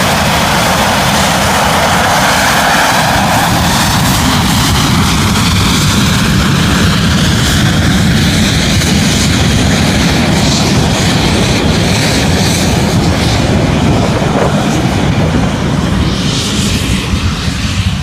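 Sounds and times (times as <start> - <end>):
aircraft engines running: 0.0 - 18.0.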